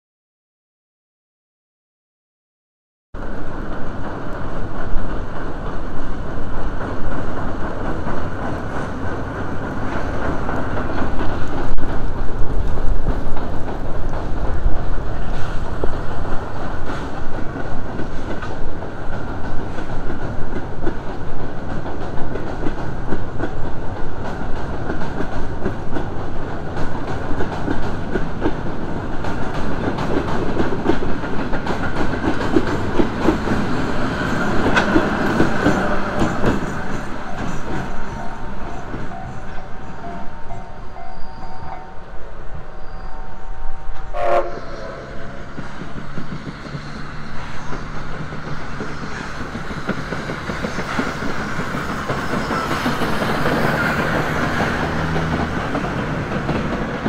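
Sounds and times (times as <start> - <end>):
train wheels clacking over rail joints: 3.5 - 41.1, 43.9 - 57.0.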